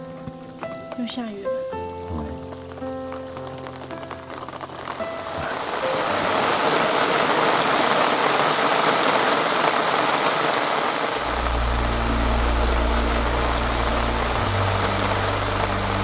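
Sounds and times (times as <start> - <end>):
steady rain falling: 0.0 - 16.0
low steady hum: 11.2 - 16.0.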